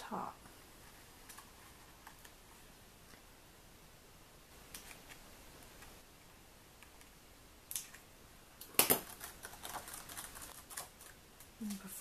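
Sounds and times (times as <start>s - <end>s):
paper crackle: 8.9s - 11.2s
paper and sticker rustling: 8.9s - 11.9s.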